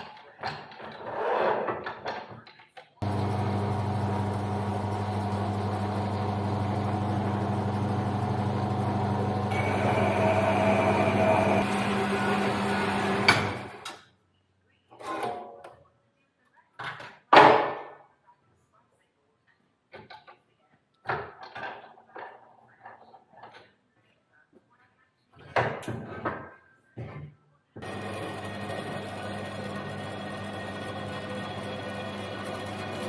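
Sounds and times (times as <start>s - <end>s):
high-pitched machine whine: 3.0s - 13.8s
electric workshop machine humming: 3.0s - 14.0s, 27.8s - 33.0s.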